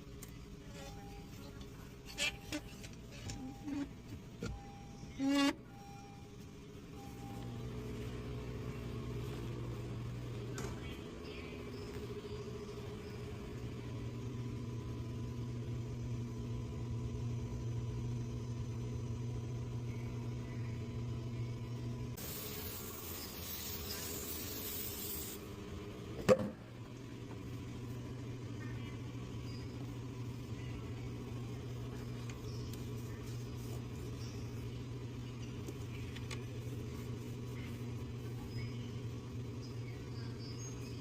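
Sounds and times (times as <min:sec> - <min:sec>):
loud hiss: 0:22.2 - 0:25.4.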